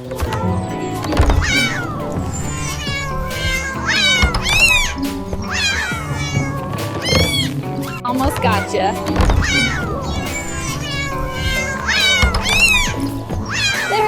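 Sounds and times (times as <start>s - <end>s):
background music: 0.0s - 14.0s
cat meowing: 0.3s - 14.0s.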